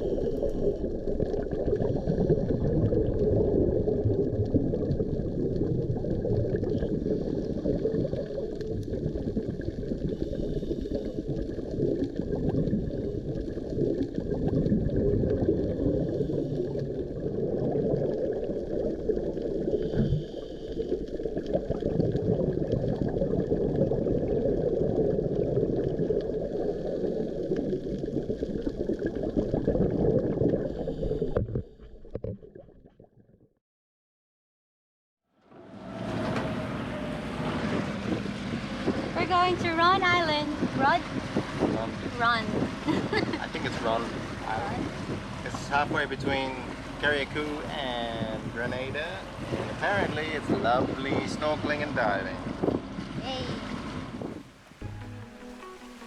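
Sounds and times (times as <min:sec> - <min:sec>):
muffled underwater gurgling: 0:00.0 - 0:33.1, 0:36.5 - 0:56.0.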